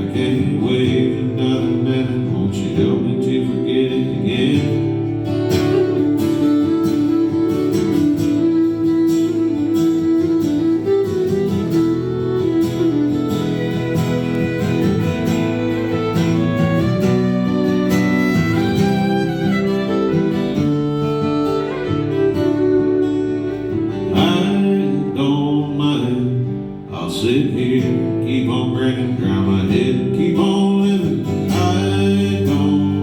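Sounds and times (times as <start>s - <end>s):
strummed acoustic guitar: 0.0s - 33.0s
fiddle melody: 3.0s - 26.9s.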